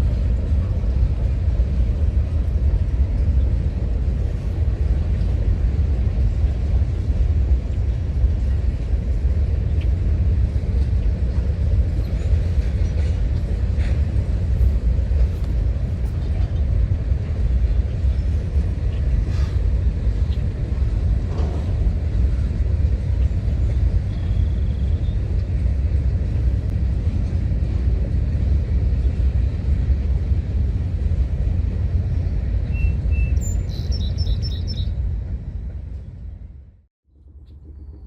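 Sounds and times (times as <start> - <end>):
freight train rumbling: 0.0 - 38.0
birds chirping: 32.7 - 35.0.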